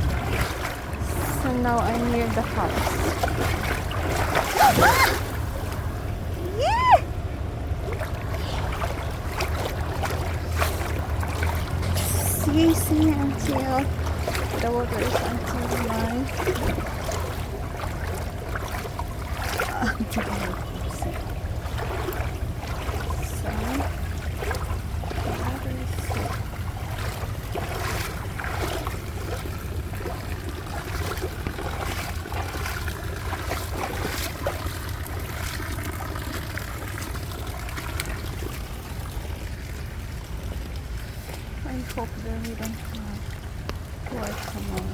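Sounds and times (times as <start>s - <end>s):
steady low rumble: 0.0s - 44.9s
wading through water splashing: 0.0s - 44.9s.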